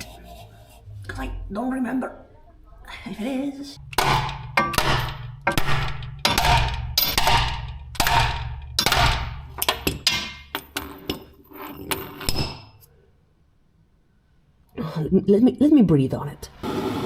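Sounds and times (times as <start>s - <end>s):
low steady hum: 0.0s - 11.4s
hammer clanging on metal: 3.8s - 11.3s.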